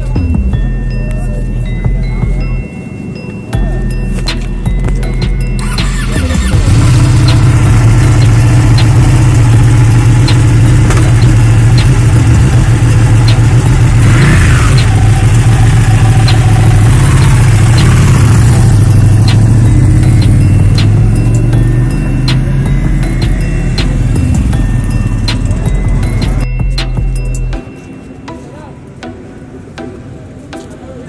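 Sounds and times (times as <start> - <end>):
motorcycle engine starting and idling: 5.5 - 26.5.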